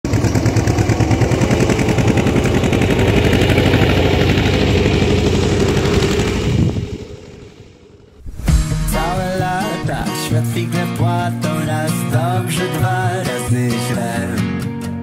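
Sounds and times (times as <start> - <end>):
farm machine engine running: 0.1 - 10.1
short loud burst: 8.2 - 10.2.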